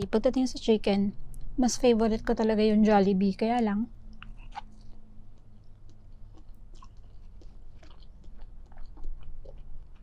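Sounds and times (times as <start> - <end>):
wet mouth clicks and smacks: 4.2 - 10.0.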